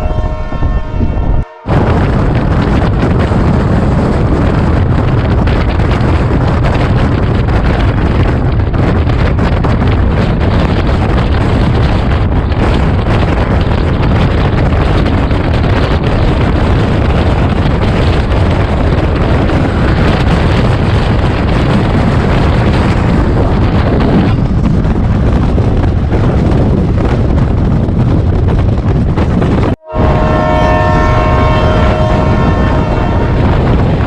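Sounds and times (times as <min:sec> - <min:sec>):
train rumbling at speed: 0:00.0 - 0:34.0
wind rushing over microphone: 0:00.0 - 0:34.0.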